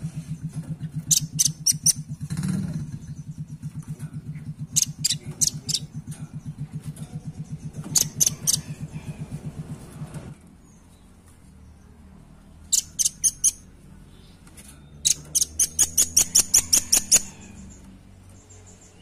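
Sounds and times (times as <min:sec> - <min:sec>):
rapid low pulsing: 0:00.0 - 0:10.3.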